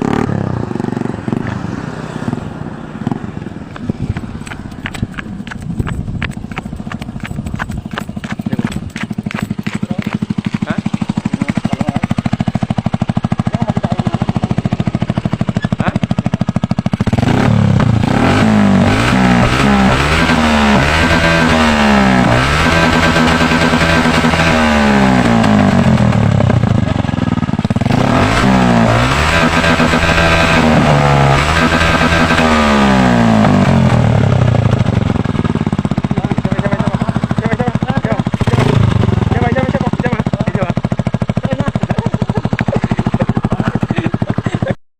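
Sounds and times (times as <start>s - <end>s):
motorcycle engine idling popping: 3.0s - 18.0s, 33.8s - 44.8s.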